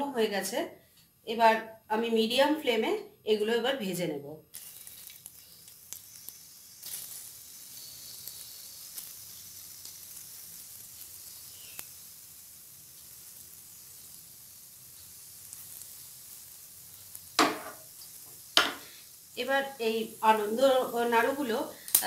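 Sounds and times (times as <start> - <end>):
food sizzling in hot oil: 4.4 - 22.0.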